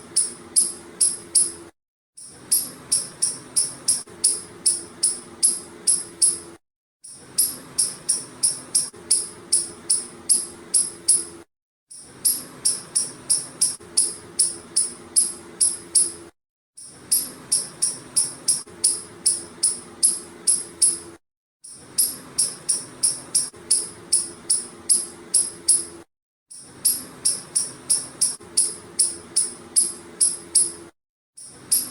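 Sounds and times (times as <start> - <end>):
squirrel chirping: 0.2 - 1.6, 2.5 - 6.4, 7.4 - 11.2, 12.2 - 16.1, 17.1 - 21.0, 22.0 - 25.9, 26.8 - 30.7.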